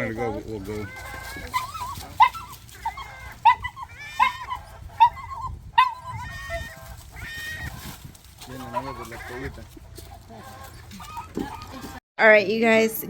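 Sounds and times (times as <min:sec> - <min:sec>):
higher-pitched animal calls: 0:00.0 - 0:09.6
animals crying sharply: 0:00.7 - 0:08.0.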